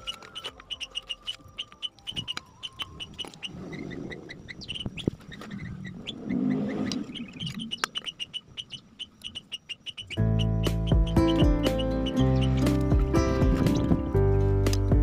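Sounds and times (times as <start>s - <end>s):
small bird chirping: 0.0s - 14.2s
music: 10.1s - 15.0s.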